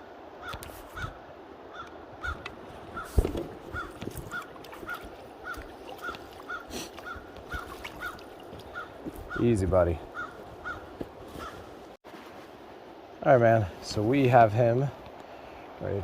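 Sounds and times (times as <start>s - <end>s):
steady background hiss: 9.0s - 16.0s.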